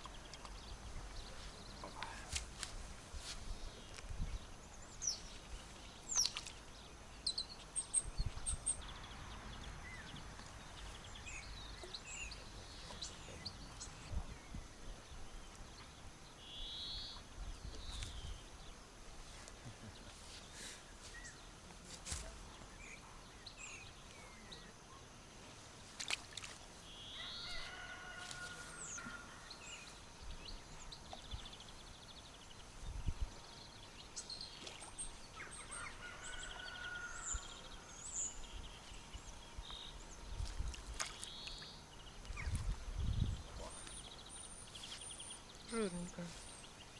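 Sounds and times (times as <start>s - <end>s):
faint outdoor background: 0.0s - 46.9s
birds calling and chirping: 26.4s - 46.9s.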